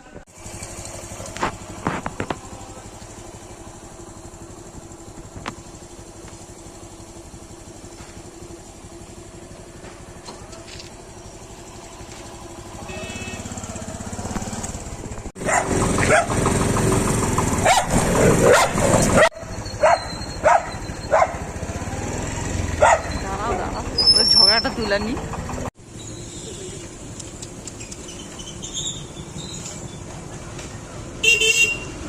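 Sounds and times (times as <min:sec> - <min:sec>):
engine running: 0:00.0 - 0:32.0
sharp clicks: 0:27.1 - 0:28.3.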